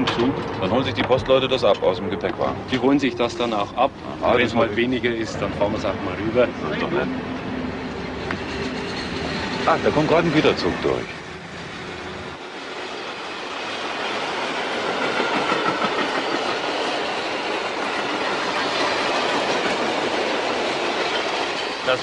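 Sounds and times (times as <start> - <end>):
freight train wheels clattering: 8.0 - 11.2, 12.3 - 22.0.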